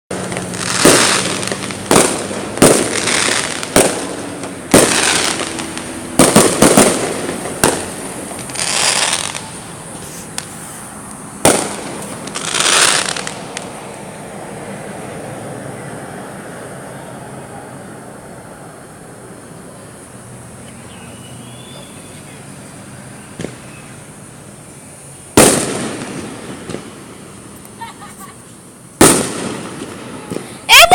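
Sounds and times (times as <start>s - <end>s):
fireworks bangs: 0.1s - 14.0s, 20.8s - 24.4s, 25.3s - 30.9s
fireworks hissing and crackling: 0.1s - 15.2s, 16.9s - 30.9s.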